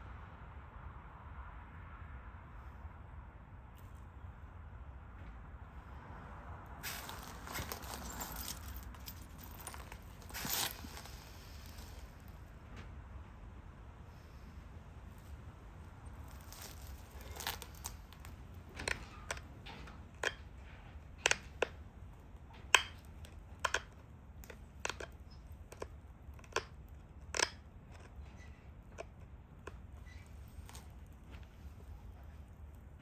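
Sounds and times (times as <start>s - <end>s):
stone flakes snapping: 16.2s - 19.4s.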